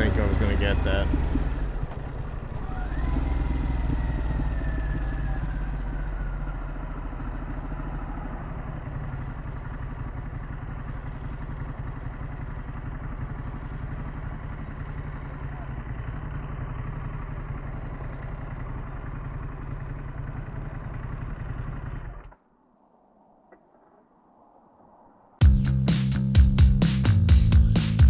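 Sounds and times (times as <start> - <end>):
motorcycle engine while riding: 0.0 - 22.4.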